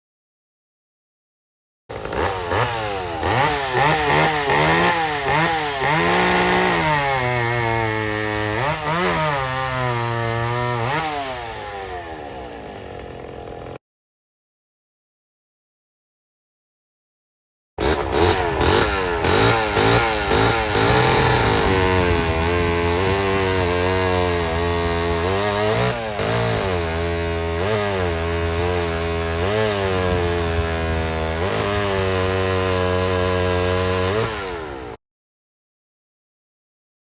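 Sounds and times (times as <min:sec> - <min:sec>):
chainsaw engine revving: 0:01.9 - 0:13.8, 0:17.8 - 0:35.0.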